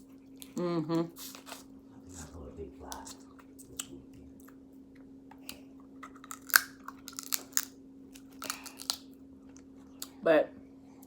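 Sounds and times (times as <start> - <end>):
faint steady hum: 0.0 - 11.0
crab shell cracking: 5.4 - 9.2.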